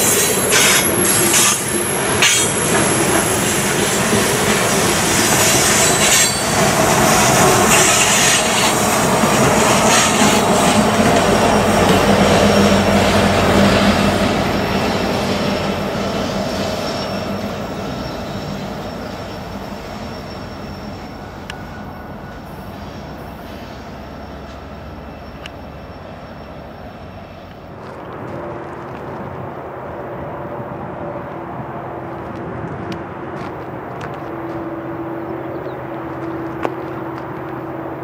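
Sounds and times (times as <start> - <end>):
train rolling past: 0.0 - 38.0.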